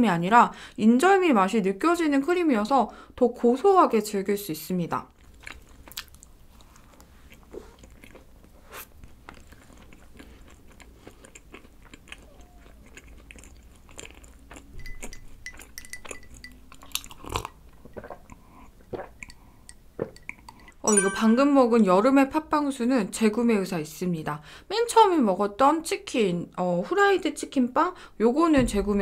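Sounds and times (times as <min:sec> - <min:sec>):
chewing with wet mouth clicks: 0:05.2 - 0:20.8.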